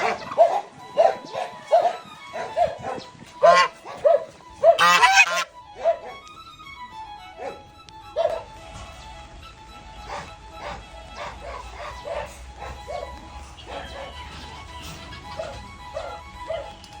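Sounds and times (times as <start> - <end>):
puppy yapping: 0.0 - 6.2, 8.2 - 8.5, 10.1 - 14.2, 15.3 - 16.8
descending music notes: 0.0 - 17.0
puppy yelp: 10.1 - 13.1, 15.3 - 16.8.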